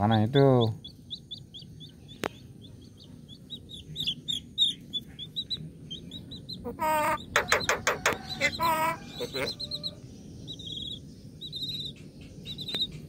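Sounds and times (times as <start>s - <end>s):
birds chirping: 0.0s - 13.0s
low-pitched bird call: 5.9s - 10.0s.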